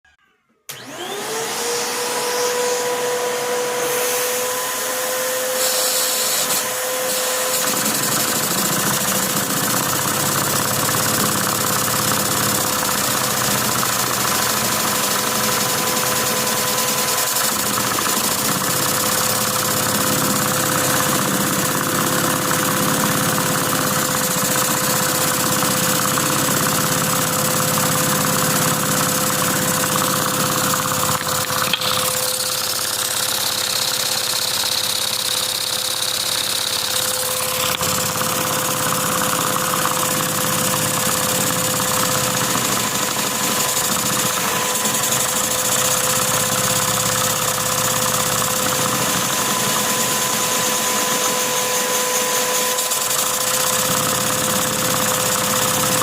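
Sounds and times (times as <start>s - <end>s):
vacuum cleaner motor whine: 0.7s - 34.4s, 35.1s - 56.0s
plastic engine parts clattering: 30.9s - 32.3s.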